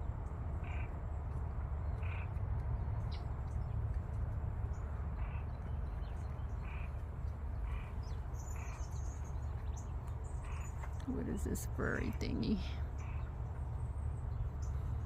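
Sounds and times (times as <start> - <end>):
birds giving harsh calls: 5.2 - 7.0, 7.6 - 13.5.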